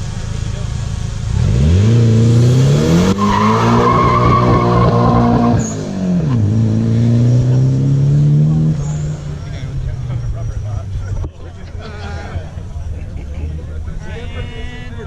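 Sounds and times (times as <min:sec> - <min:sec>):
car engine revving: 0:00.0 - 0:11.4.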